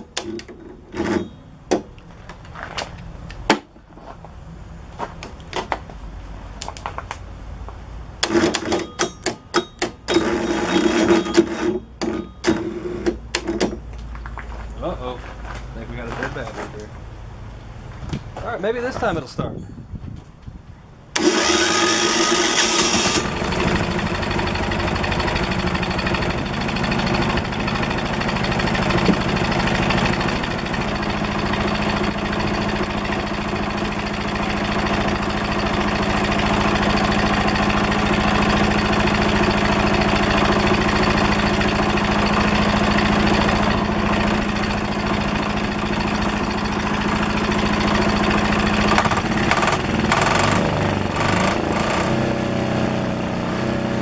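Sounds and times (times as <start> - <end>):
electric starter cranking: 8.2 - 9.2, 9.8 - 13.8, 21.2 - 52.0
diesel engine idling: 21.2 - 52.0.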